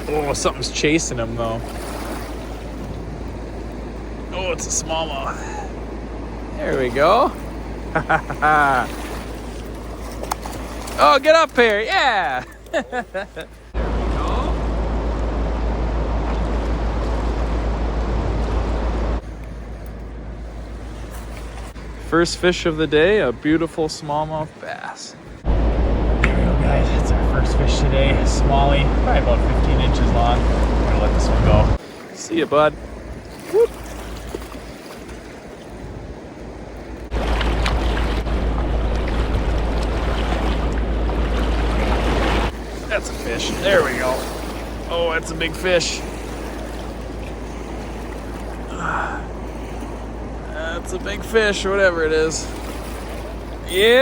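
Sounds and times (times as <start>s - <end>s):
wind rumble on microphone: 0.0s - 11.0s, 25.3s - 31.8s, 32.7s - 44.9s
water rushing: 0.0s - 54.0s
low rumble: 13.0s - 23.5s, 25.3s - 31.8s, 35.9s - 54.0s
wind rushing: 25.4s - 31.8s.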